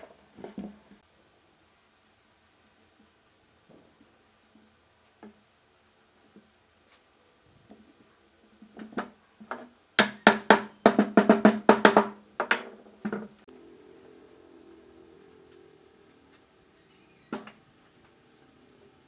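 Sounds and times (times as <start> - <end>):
hammer knocking on wood: 8.8 - 13.3.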